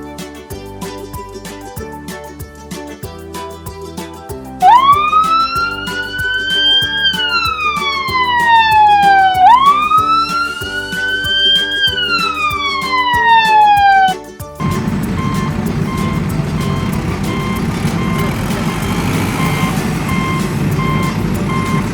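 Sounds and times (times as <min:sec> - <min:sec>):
background music with steady beat: 0:00.0 - 0:21.9
wailing siren: 0:04.7 - 0:11.6, 0:14.7 - 0:21.9.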